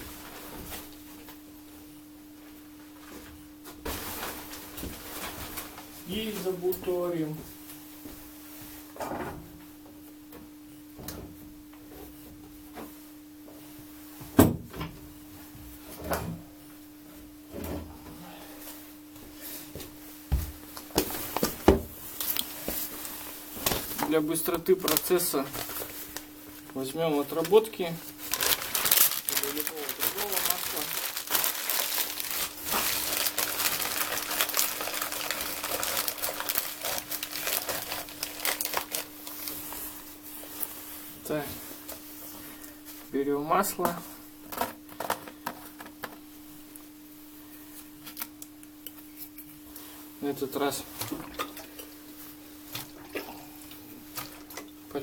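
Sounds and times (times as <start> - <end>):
faint steady hum: 0.0 - 55.0
newspaper crumpling and rustling: 22.2 - 26.2, 27.4 - 40.1.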